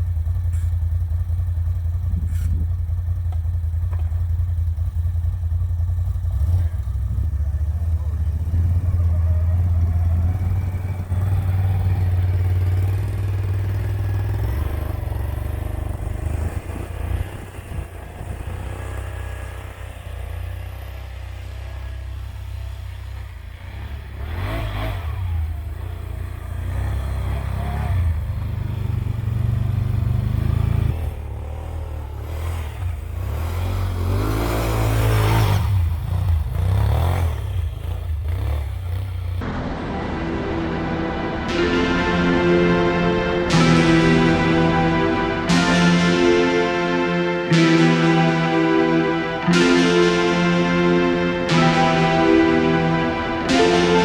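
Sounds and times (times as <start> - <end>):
atv engine revving: 0.0 - 39.5.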